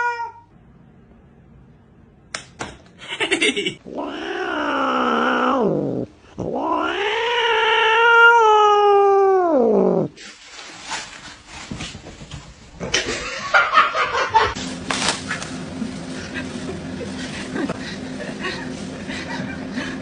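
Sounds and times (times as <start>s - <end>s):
cat yowling: 0.0s - 0.5s, 3.9s - 10.1s.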